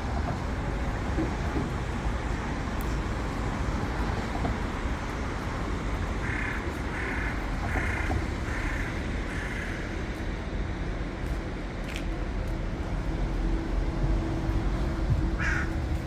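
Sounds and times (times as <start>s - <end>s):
city traffic rumble: 0.0s - 16.0s
crow cawing: 6.2s - 9.8s, 15.4s - 15.8s.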